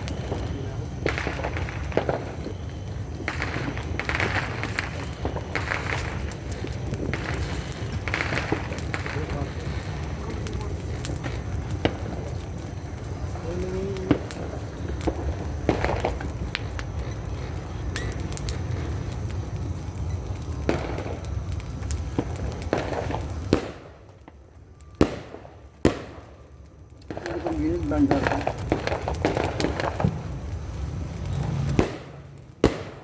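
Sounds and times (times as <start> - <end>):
firecrackers popping: 0.0 - 33.0.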